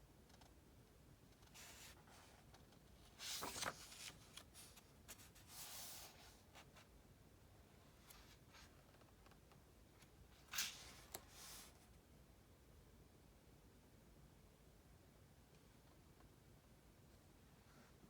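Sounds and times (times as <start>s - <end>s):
book pages rustling: 1.4s - 6.9s, 10.4s - 11.8s.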